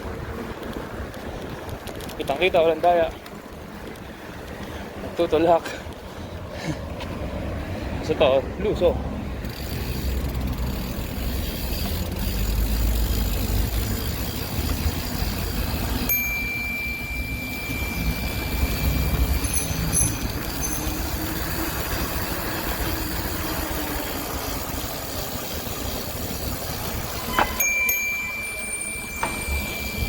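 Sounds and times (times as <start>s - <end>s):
bicycle tyre road noise: 0.0s - 30.0s
bell-like ring: 16.1s - 21.3s, 27.3s - 30.0s.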